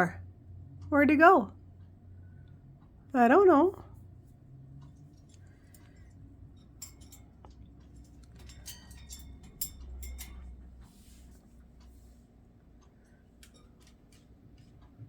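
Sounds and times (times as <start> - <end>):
low steady hum: 0.0 - 15.0
light clicks and taps: 12.8 - 15.0.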